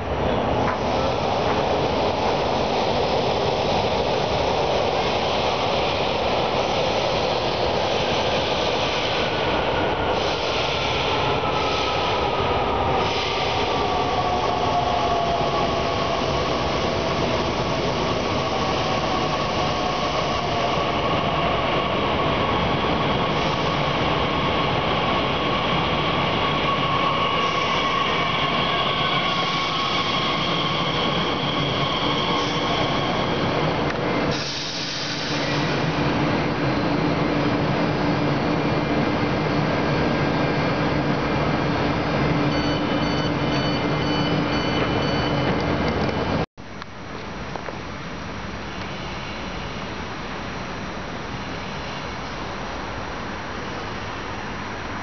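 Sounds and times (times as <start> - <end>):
falling train whine: 0.0 - 46.4
electric train braking: 22.6 - 36.0.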